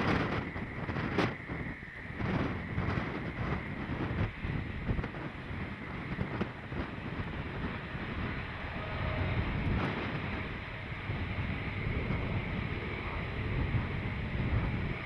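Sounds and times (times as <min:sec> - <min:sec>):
train rumbling past: 0:00.0 - 0:15.0
wind on microphone: 0:00.0 - 0:15.0.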